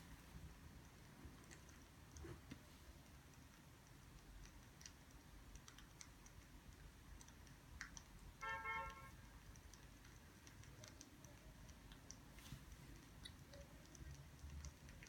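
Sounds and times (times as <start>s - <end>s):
faint ticks and clicks: 0.0s - 15.0s
short horn-like tone: 8.4s - 9.1s.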